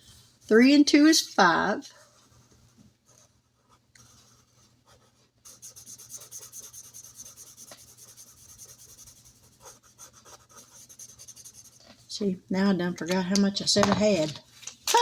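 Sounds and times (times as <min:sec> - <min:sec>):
pen scribbling on paper: 0:03.6 - 0:11.9.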